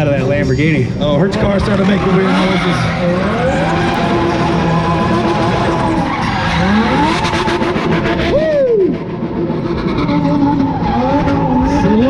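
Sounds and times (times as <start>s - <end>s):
car engines revving hard: 0.0s - 12.0s
tyre squeal and skidding: 1.4s - 8.6s, 9.6s - 12.0s.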